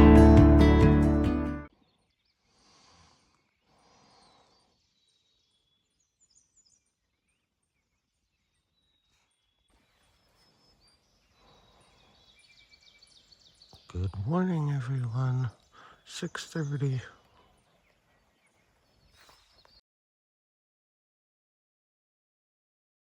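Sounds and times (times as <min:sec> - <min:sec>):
distant bird chirps: 0:01.8 - 0:19.8.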